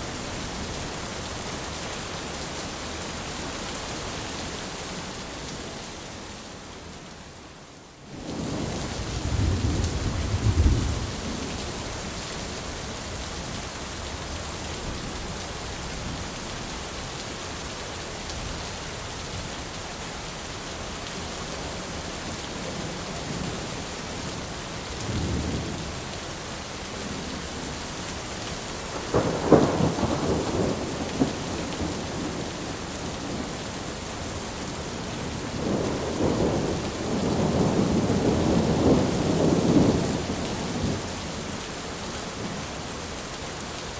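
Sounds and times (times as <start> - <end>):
steady rain hissing: 0.0 - 43.9
thunder rumbling: 8.3 - 11.6, 28.9 - 33.6, 35.2 - 41.0.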